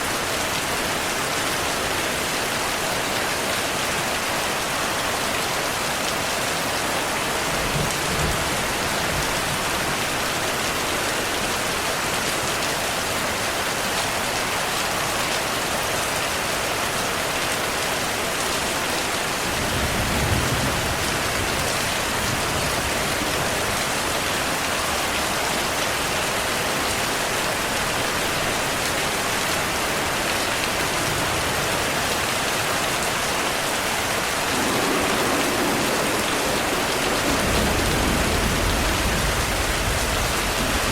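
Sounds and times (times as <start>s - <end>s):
heavy rain: 0.0s - 40.9s
thunder rumbling: 34.4s - 40.9s.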